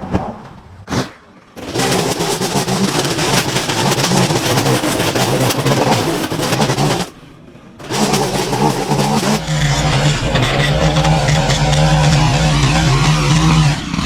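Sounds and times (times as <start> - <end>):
hedge trimmer cutting: 1.6 - 7.2, 7.8 - 9.4.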